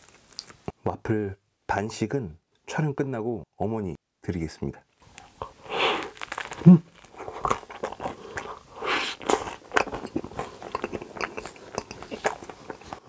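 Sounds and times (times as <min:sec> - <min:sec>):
crisp crunches of biting waffle: 0:00.0 - 0:00.7, 0:05.0 - 0:13.0
chewing clicks: 0:09.2 - 0:13.0.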